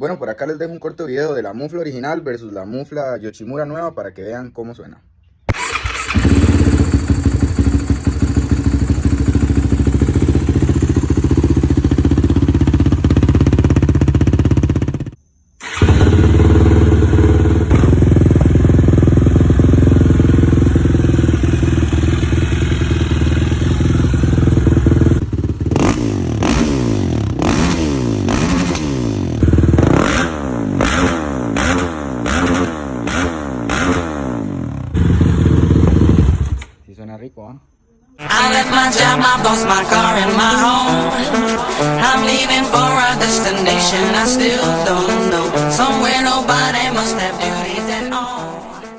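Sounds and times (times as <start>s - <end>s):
quad engine idling: 5.5s - 36.6s
engine revving: 5.5s - 36.7s, 38.2s - 48.9s.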